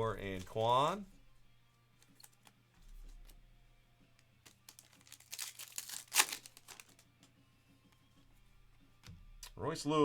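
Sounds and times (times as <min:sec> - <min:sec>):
foil wrapper crinkling and tearing: 0:04.4 - 0:07.0.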